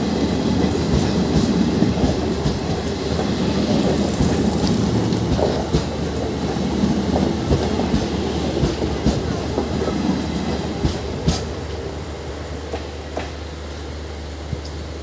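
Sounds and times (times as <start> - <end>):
passing train: 0.0 - 15.0
train coaches rumbling: 0.0 - 15.0
wheels clacking over rail joints: 0.5 - 11.8.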